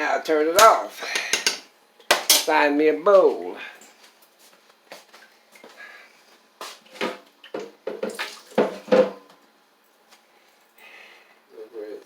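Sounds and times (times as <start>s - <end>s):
dishes clattering: 1.2s - 2.5s, 7.0s - 9.3s.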